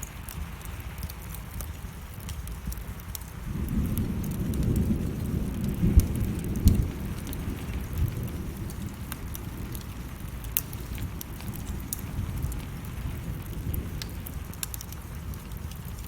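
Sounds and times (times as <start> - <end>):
low rumble of thunder: 0.0 - 16.0
steady rain: 0.0 - 16.0
wood fire crackling: 0.0 - 16.0.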